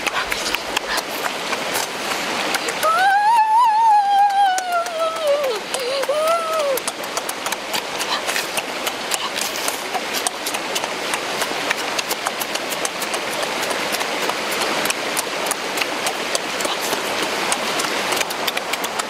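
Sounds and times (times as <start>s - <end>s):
stream water flowing: 0.0s - 19.0s.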